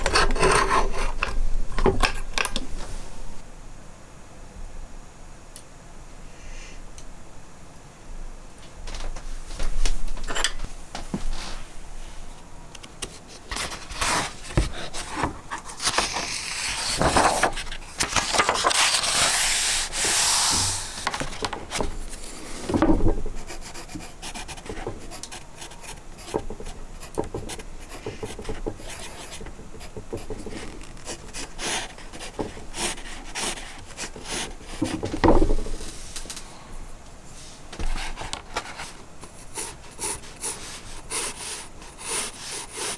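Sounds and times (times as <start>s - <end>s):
rubbing and scraping strokes: 13.6s - 22.7s.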